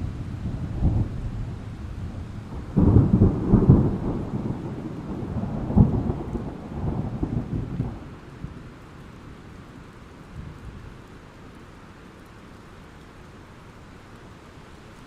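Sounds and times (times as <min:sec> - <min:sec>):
thunder rumbling: 0:00.0 - 0:08.6
steady rain: 0:00.0 - 0:15.0
sharp thunder crack: 0:02.5 - 0:07.4.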